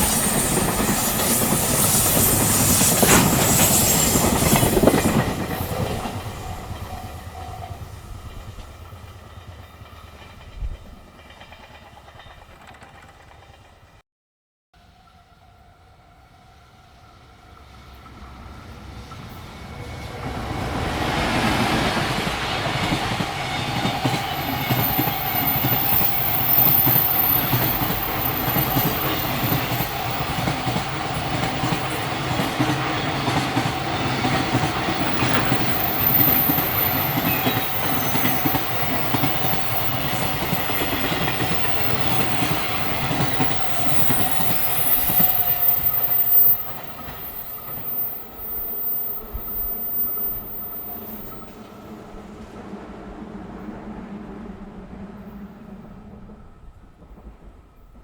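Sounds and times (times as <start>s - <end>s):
high wheel squeal: 0.0s - 4.9s, 23.4s - 32.3s, 33.0s - 51.6s
freight train wheels clattering: 0.0s - 13.8s.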